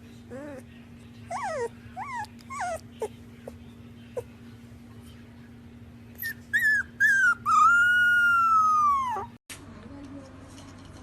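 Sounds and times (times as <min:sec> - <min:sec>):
dog whining: 0:00.3 - 0:00.7, 0:01.3 - 0:03.6, 0:06.2 - 0:09.4.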